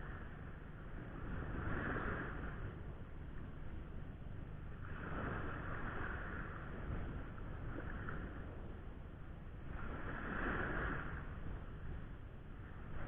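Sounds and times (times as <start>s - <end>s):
surf washing on beach: 0.0s - 3.7s, 4.6s - 8.9s, 9.6s - 13.0s
wind rumble on microphone: 0.0s - 13.0s.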